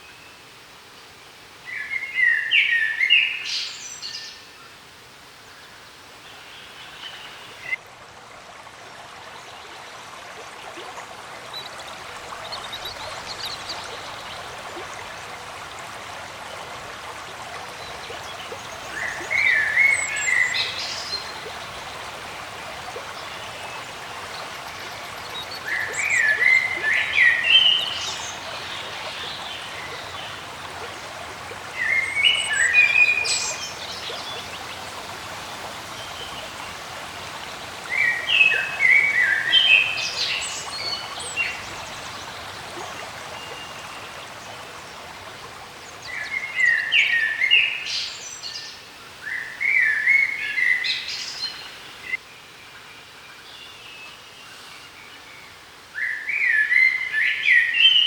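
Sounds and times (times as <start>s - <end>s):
background hiss: 0.0s - 7.8s
songbird singing: 1.0s - 4.8s, 17.8s - 58.0s.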